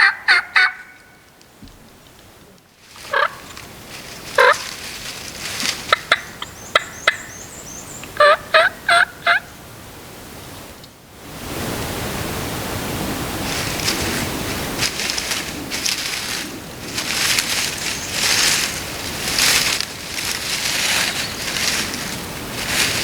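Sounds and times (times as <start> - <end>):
turkey gobbling: 0.0 - 1.2, 3.0 - 4.9, 5.6 - 7.5, 8.1 - 9.5
steady rustling: 1.6 - 6.4, 13.4 - 23.0.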